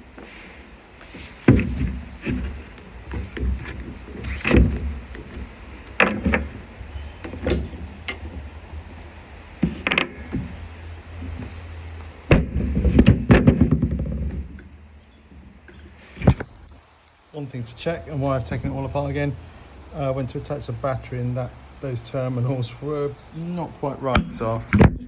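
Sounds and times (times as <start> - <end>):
tools and plastic parts knocking: 1.5 - 10.6, 12.3 - 14.8
rattling clatter: 1.5 - 11.6.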